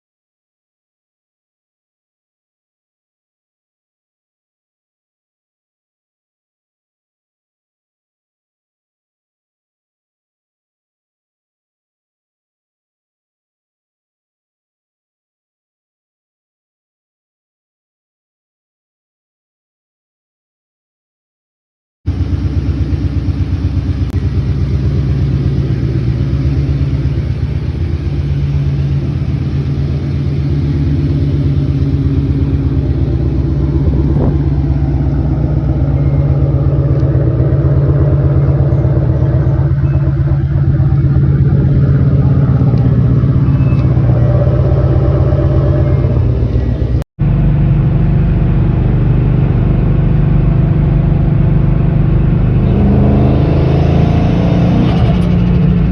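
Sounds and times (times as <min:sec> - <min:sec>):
car engine idling: 0:22.1 - 0:55.9.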